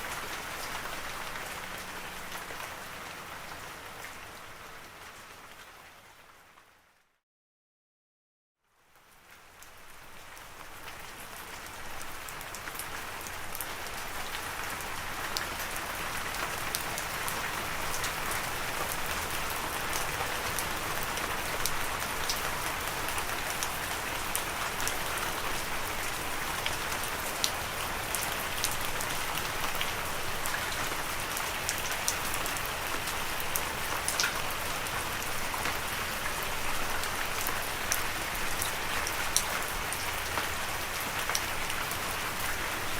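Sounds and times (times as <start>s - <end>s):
steady rain falling: 0.0s - 7.0s, 8.7s - 42.9s
raindrops ticking on a surface: 8.8s - 42.9s.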